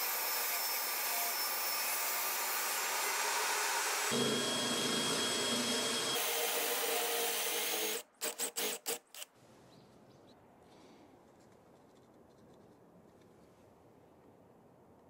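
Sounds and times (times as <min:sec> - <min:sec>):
cordless drill boring into plywood: 0:00.0 - 0:09.2.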